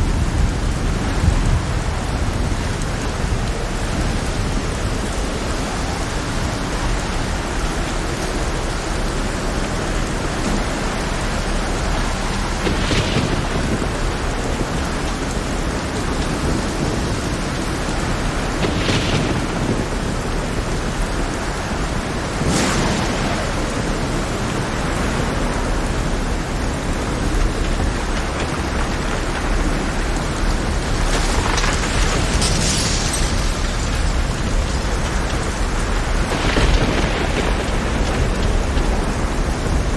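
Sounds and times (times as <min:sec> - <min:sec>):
heavy rain: 0:00.0 - 0:39.9
rough sea surf: 0:00.0 - 0:39.9.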